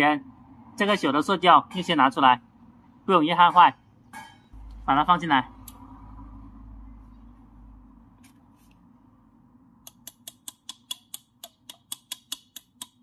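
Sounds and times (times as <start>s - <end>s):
faint low hum: 3.8s - 9.9s
rapid even clicking: 9.9s - 13.0s.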